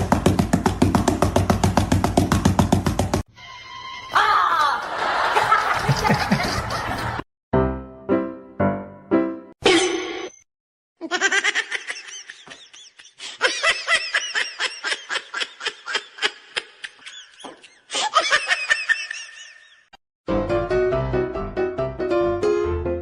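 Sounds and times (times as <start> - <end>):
high-pitched giggling laughter: 4.8 - 7.2, 11.0 - 19.9.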